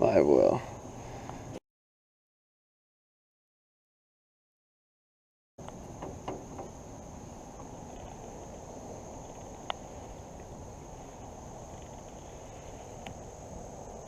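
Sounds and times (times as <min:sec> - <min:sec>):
high-pitched insect drone: 0:05.6 - 0:14.0.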